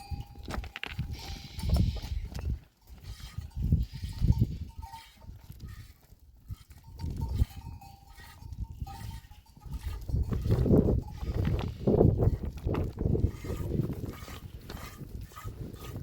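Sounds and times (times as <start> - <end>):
goat bell ringing: 0.0 - 12.4.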